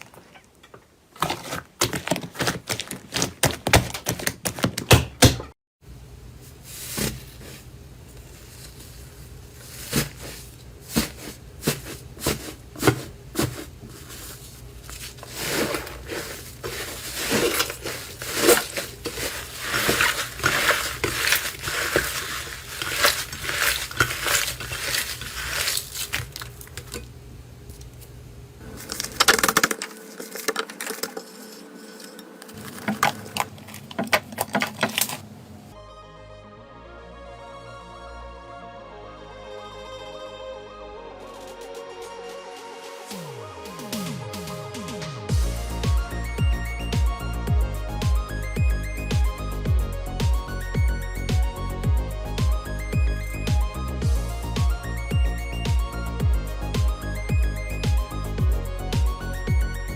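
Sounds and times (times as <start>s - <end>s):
slime crackling and popping: 16.6s - 27.0s.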